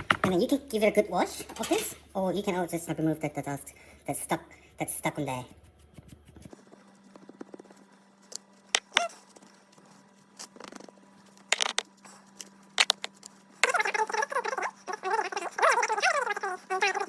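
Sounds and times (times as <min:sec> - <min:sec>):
wavering voice-like sound: 0:13.6 - 0:17.0.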